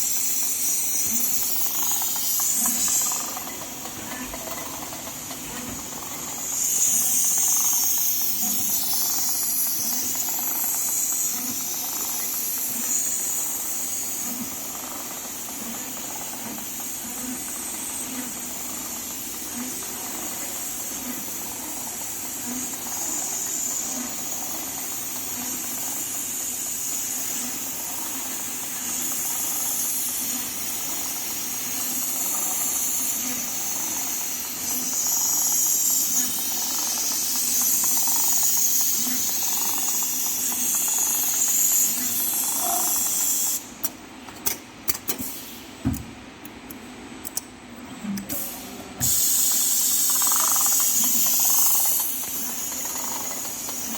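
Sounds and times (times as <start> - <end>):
sharp clicks: 46.4 - 47.5
steady high hiss: 48.5 - 53.9.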